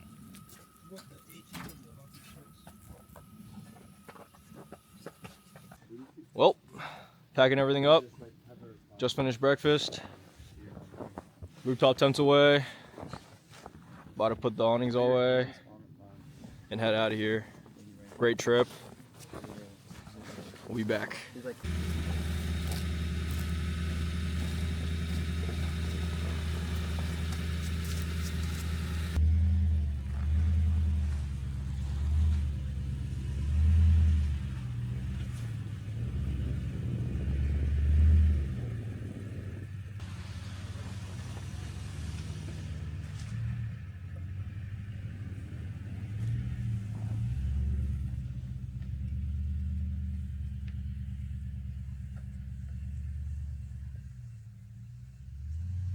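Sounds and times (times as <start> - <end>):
truck engine running: 0.0 - 5.8, 21.5 - 55.9.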